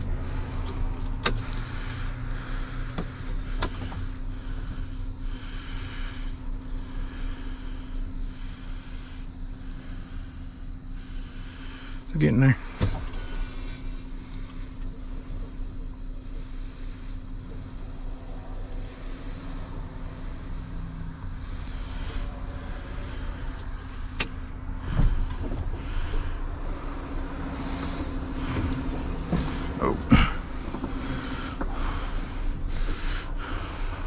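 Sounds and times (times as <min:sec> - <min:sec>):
low engine hum: 0:00.0 - 0:34.0
high-pitched warning buzzer: 0:01.3 - 0:24.3.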